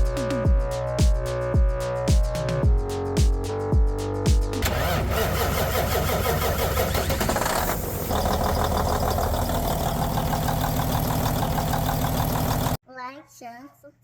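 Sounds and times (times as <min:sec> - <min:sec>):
truck diesel engine running: 0:04.6 - 0:12.8.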